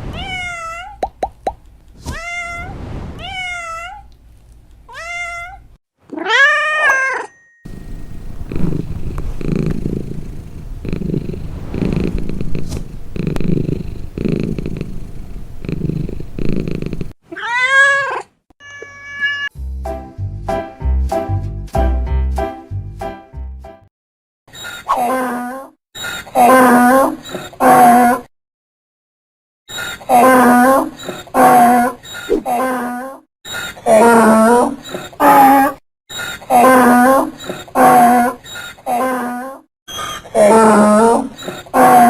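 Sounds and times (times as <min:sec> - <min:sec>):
cat meowing: 0:00.0 - 0:01.0, 0:02.1 - 0:04.1, 0:04.9 - 0:07.3, 0:17.3 - 0:19.5
cat purring: 0:07.7 - 0:17.2
music: 0:19.5 - 0:23.9.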